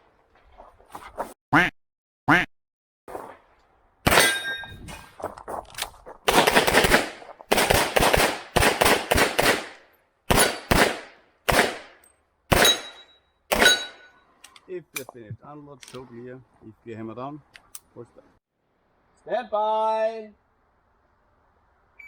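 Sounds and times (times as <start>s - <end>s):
rapid pistol shots: 6.3s - 14.0s.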